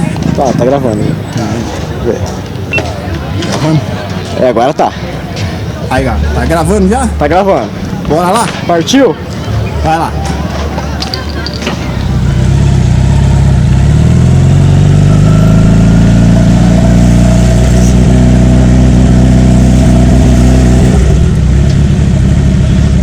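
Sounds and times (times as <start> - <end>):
motorcycle engine pulling away: 11.1 - 23.0.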